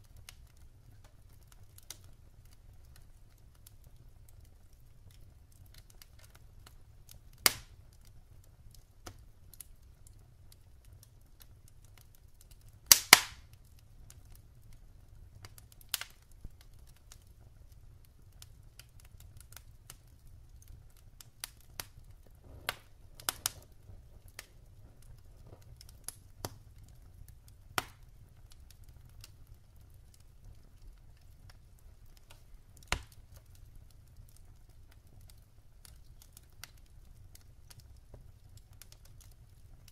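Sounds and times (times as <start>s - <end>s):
wood fire crackling: 0.0s - 39.9s
faint low rumble: 19.2s - 34.0s.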